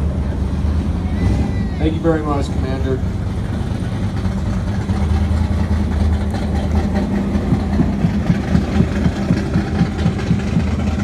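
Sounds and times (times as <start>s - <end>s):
vehicle engine idling: 0.0s - 11.0s
quick regular pulse: 7.4s - 11.0s.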